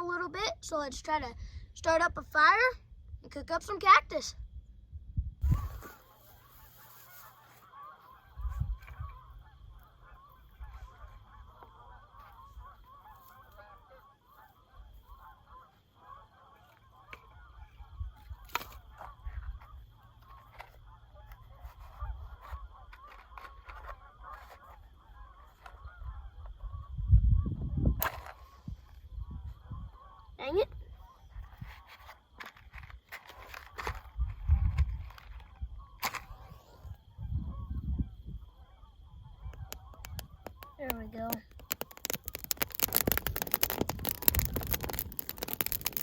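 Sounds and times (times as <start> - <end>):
wind rumbling on microphone: 4.3 - 7.5, 8.2 - 13.0, 17.1 - 46.0
geese honking: 5.5 - 26.9.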